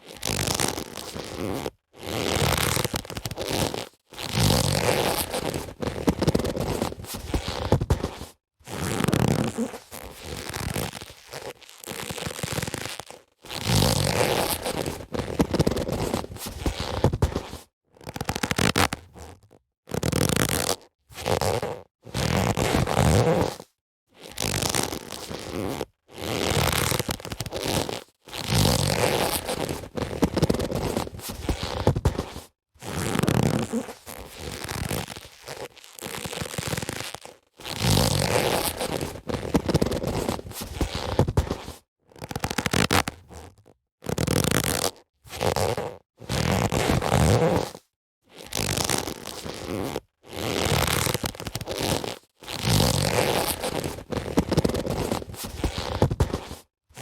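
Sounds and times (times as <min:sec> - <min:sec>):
boxing gloves rubbing and crackling: 0:00.0 - 0:57.0.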